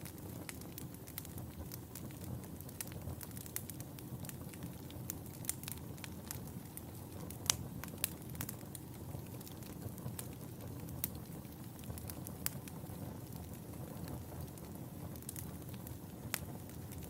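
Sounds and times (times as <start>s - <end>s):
fire popping and snapping: 0.0s - 17.0s
wood fire crackling: 0.0s - 17.0s.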